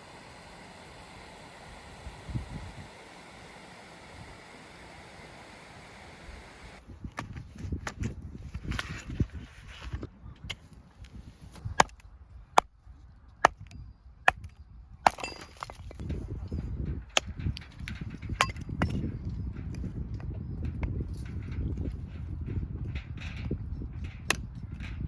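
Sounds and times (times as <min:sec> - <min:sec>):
steady rustling noise: 0:00.0 - 0:12.2.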